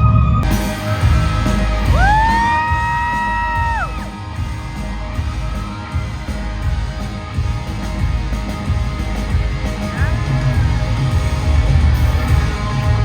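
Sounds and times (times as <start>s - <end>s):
high-pitched audience scream: 0.0s - 6.6s
rock band playing live: 0.4s - 13.0s.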